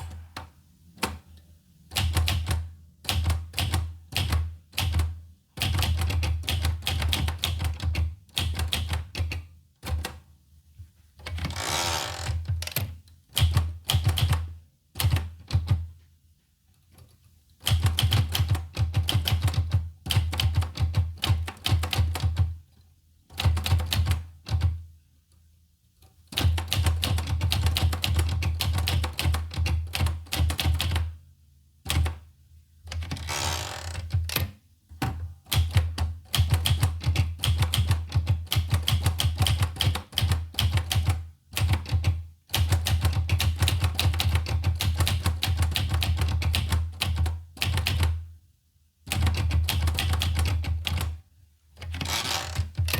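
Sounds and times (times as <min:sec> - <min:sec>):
typewriter carriage rasping slide: 0:11.4 - 0:12.4, 0:33.2 - 0:34.1, 0:52.0 - 0:52.7.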